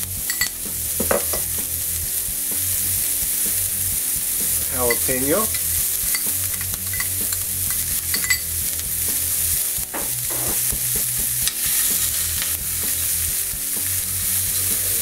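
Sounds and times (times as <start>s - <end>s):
vegetables sizzling in oil: 0.0s - 15.0s
metal spoon scraping pan: 4.8s - 8.5s.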